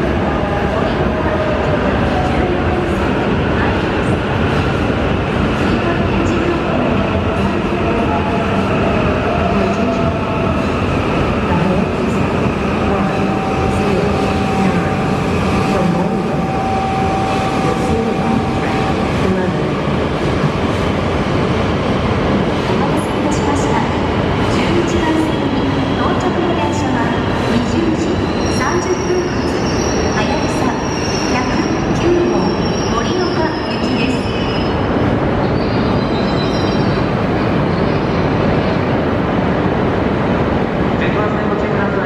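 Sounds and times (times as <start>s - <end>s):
faint high squeal: 35.6s - 37.1s.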